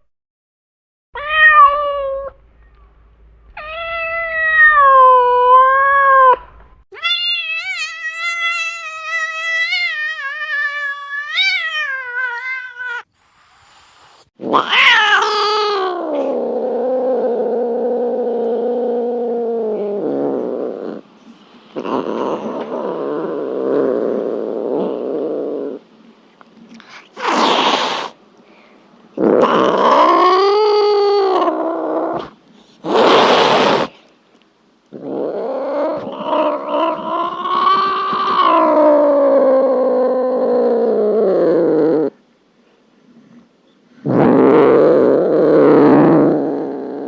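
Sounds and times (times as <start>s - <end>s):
cat yowling: 1.2s - 2.4s, 3.6s - 13.1s, 14.5s - 16.5s.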